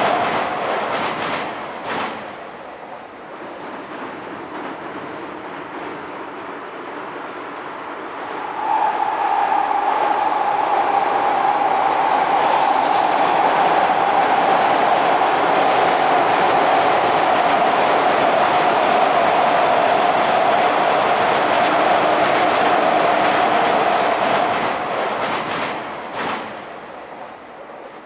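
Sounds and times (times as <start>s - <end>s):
train wheels rumbling on rail: 0.0s - 28.0s
faint rail-joint clicks: 3.7s - 5.0s.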